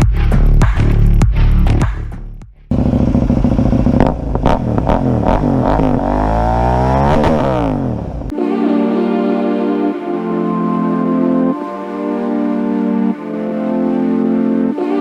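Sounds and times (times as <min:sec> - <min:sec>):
electronic music with a beat: 0:00.0 - 0:02.1, 0:08.3 - 0:15.0
motorcycle engine revving: 0:02.7 - 0:08.3
organ music: 0:08.3 - 0:15.0.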